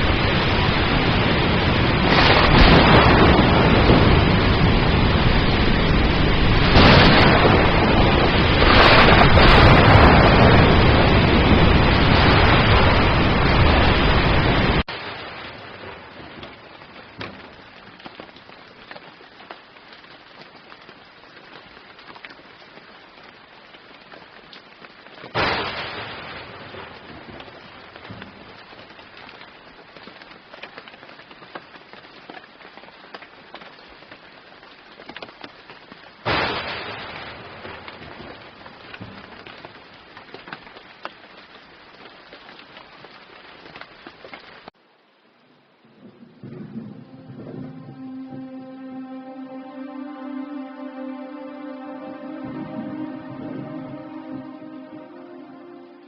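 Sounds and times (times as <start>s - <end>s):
thunderclap: 0.0s - 17.7s, 45.8s - 48.6s
heavy rain hissing: 0.0s - 30.1s.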